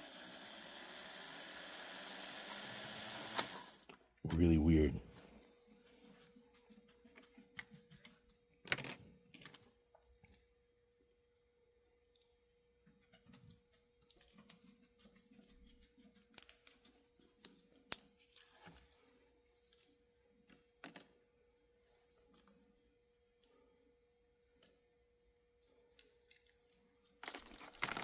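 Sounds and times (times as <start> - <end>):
small plastic and metal parts clicking: 25.9 - 28.0.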